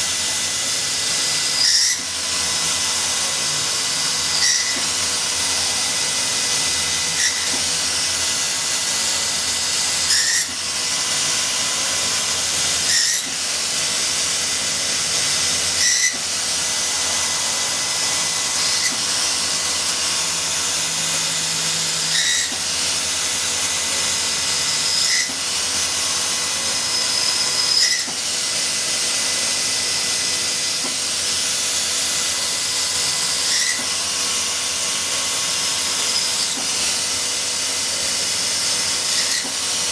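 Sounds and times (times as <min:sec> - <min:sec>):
high machine whine: 0:00.0 - 0:39.9
milling machine hissing: 0:00.0 - 0:39.9.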